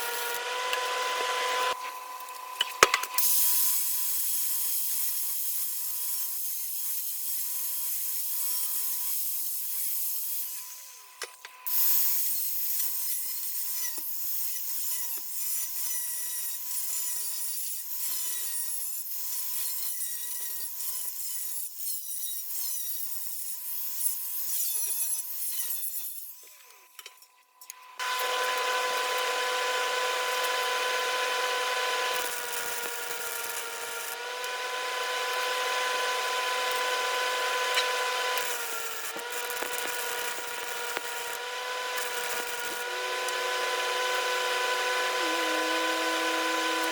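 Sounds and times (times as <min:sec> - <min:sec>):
welder arc crackling and sizzling: 0:32.1 - 0:34.2, 0:35.2 - 0:46.9.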